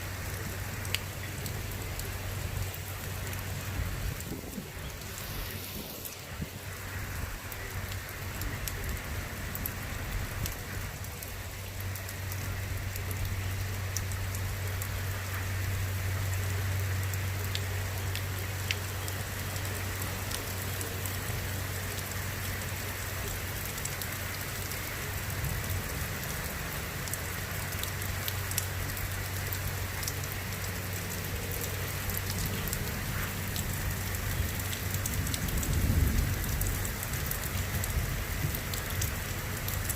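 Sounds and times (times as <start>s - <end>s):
rain hissing: 0.0s - 39.9s
raindrops ticking on surfaces: 0.0s - 39.9s.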